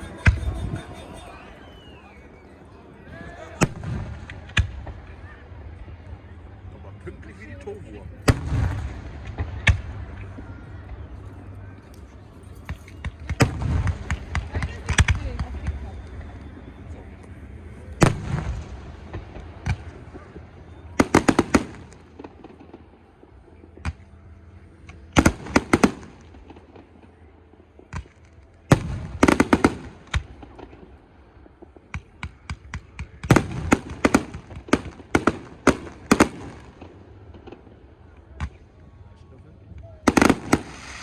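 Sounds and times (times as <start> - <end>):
fireworks bangs: 0.0 - 2.7, 8.2 - 10.4, 27.8 - 38.7, 40.0 - 41.0
crackling fireworks: 0.0 - 41.0.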